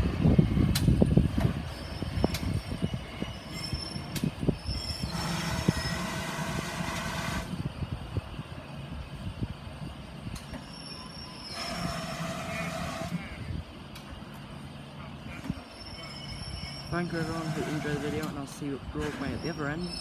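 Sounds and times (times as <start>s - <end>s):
train rumbling on rails: 0.0s - 20.0s
wheel squeal: 1.4s - 7.6s, 10.3s - 13.5s, 15.2s - 18.4s, 19.0s - 20.0s.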